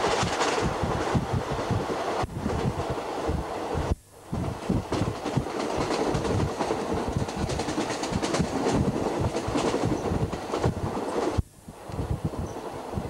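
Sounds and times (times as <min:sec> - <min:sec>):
train running gear rumble: 0:00.0 - 0:13.0
wheels clacking over rail joints: 0:04.9 - 0:11.4.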